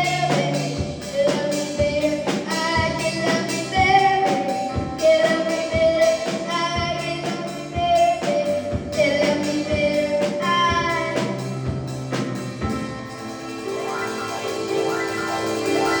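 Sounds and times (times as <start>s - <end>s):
woman singing pop song: 0.0s - 11.6s
backing music with drums: 0.0s - 16.0s.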